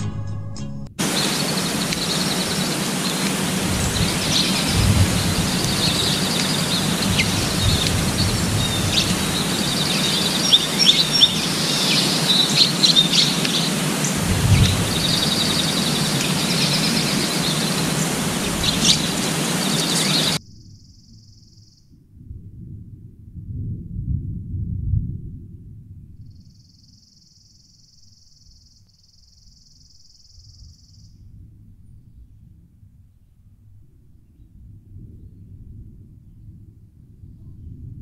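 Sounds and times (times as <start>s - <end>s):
small birds chirping and trilling: 1.0s - 21.8s
steady outdoor hiss: 1.0s - 21.8s.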